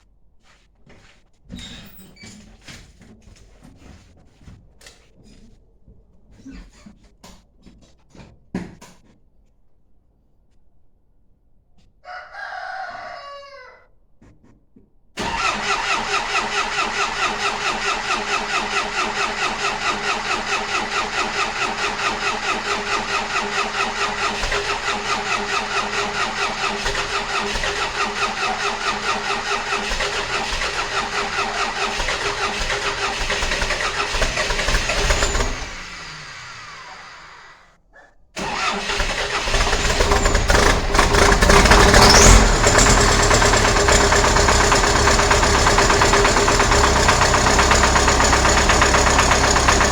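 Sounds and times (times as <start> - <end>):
diesel engine running: 15.2 - 37.1, 38.4 - 49.9
starter cranking diesel engine: 15.2 - 37.4, 38.4 - 49.9.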